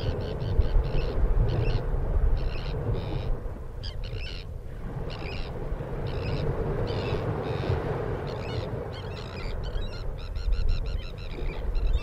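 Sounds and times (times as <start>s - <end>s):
birds calling: 5.1s - 12.0s.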